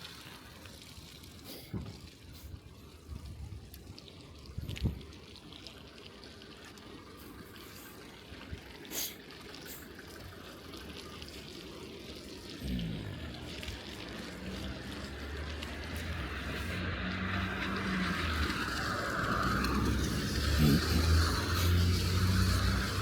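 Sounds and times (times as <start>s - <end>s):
bicycle tyres through wet snow: 0.0s - 23.0s
car engine hum: 12.6s - 23.0s.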